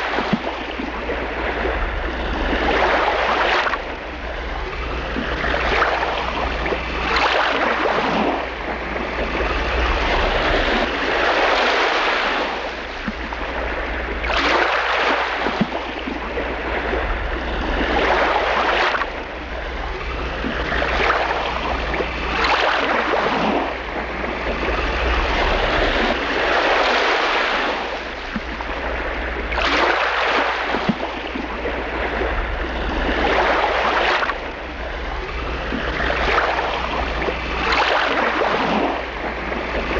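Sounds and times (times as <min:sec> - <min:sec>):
small waves washing against shore: 0:00.0 - 0:39.9
steady low rumble: 0:15.6 - 0:26.9, 0:30.9 - 0:39.9.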